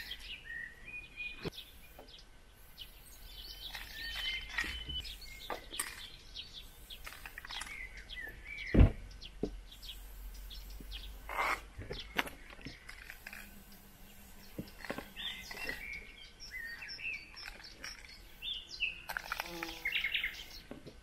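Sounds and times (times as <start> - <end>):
birds chirping and whistling: 0.0 - 20.7
loud thump: 8.7 - 9.6.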